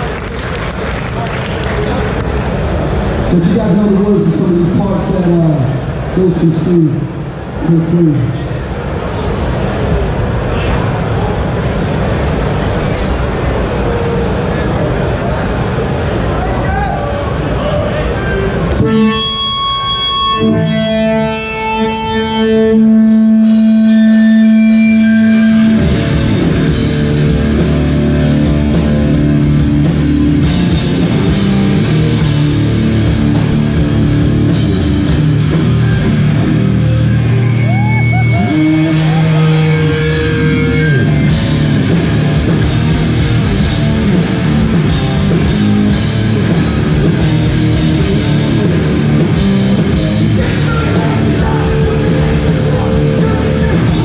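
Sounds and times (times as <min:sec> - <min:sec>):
hardcore band playing live: 0:18.5 - 0:54.0
held electric guitar notes: 0:18.6 - 0:54.0.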